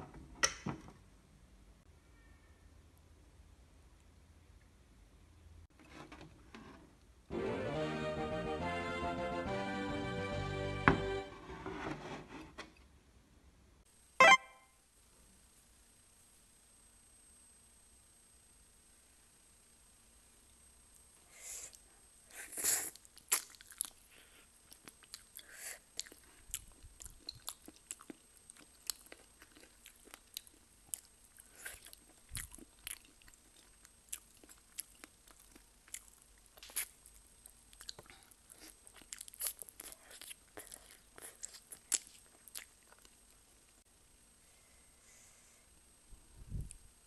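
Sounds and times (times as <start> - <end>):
wet crunchy chewing: 22.9 - 24.0, 24.7 - 43.2.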